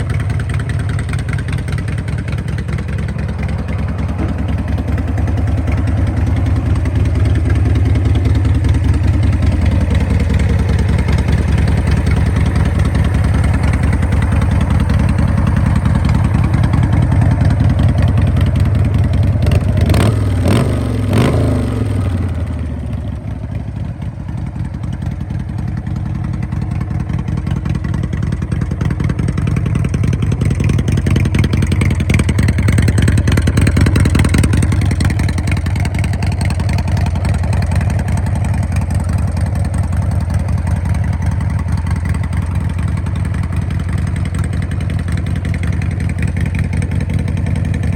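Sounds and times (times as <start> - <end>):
motorcycle engine revving: 0.0 - 23.3.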